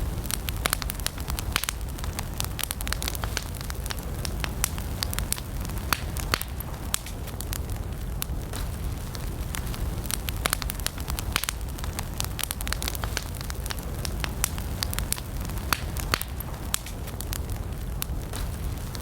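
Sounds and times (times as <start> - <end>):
campfire crackling and popping: 0.0 - 19.0
low rush of flame: 0.0 - 19.0.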